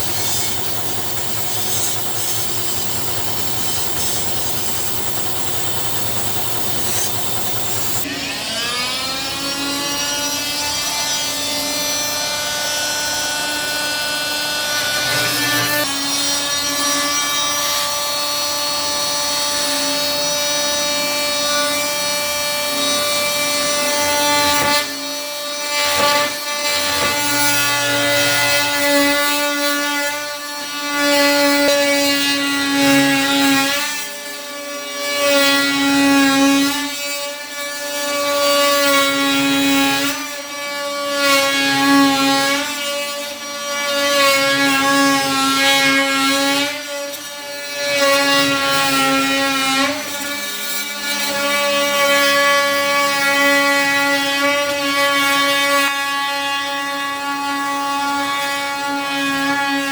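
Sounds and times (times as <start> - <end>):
power tool cutting wood: 0.0 - 59.9.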